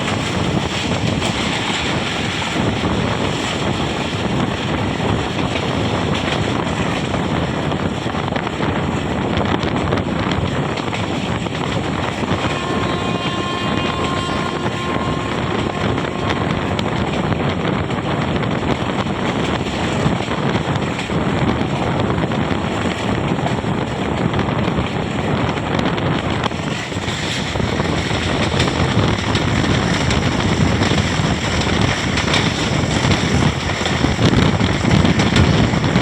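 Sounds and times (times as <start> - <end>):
train rumbling on track: 0.0 - 36.0
wind on microphone: 0.0 - 36.0
pitched tone with overtones: 12.4 - 17.2.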